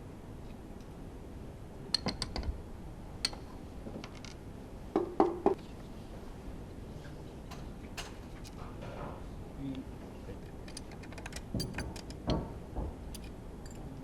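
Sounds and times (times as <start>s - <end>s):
metal tools clinking: 10.7s - 12.2s, 13.1s - 14.0s.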